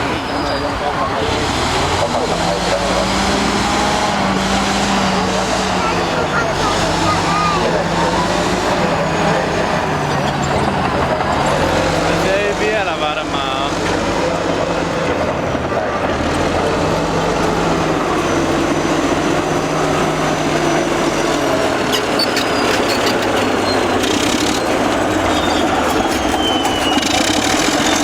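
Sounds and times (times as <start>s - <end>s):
bulldozer diesel engine droning: 0.0s - 28.0s
faint high squeals: 21.9s - 28.0s.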